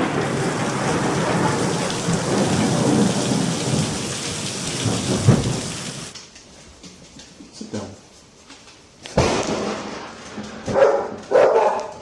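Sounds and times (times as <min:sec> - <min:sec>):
sharp thunder crack: 0:00.0 - 0:06.1, 0:09.2 - 0:10.8
thunder rolling: 0:00.0 - 0:06.1, 0:09.2 - 0:11.5
heavy rain: 0:00.0 - 0:06.2.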